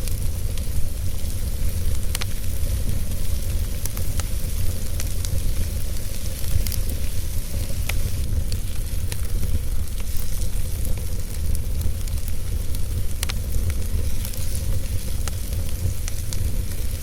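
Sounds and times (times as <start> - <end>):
fire hissing and rumbling: 0.0 - 17.0
logs crackling and popping: 0.0 - 17.0.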